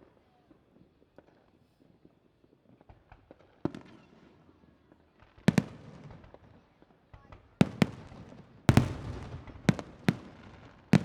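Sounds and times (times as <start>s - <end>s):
fireworks pops and crackles: 0.0s - 11.0s
fireworks bangs: 8.7s - 11.0s.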